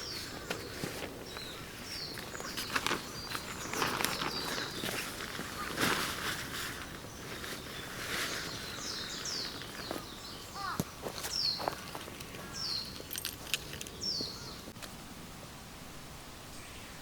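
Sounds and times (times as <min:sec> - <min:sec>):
rustling: 0:00.1 - 0:10.1.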